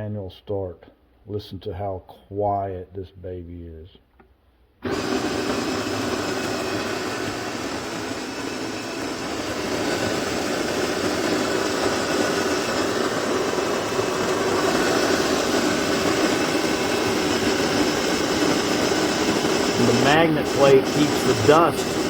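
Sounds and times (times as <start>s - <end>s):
coffee grinder grinding beans: 4.8s - 22.0s.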